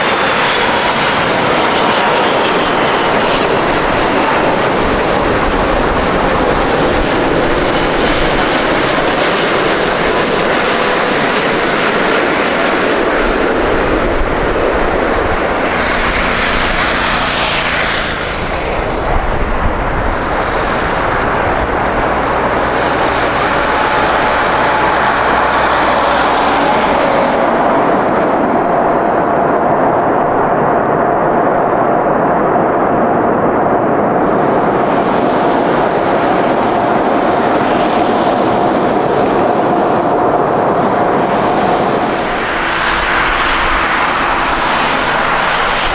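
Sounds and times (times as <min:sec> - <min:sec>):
steady high engine tone: 0:36.5 - 0:38.7.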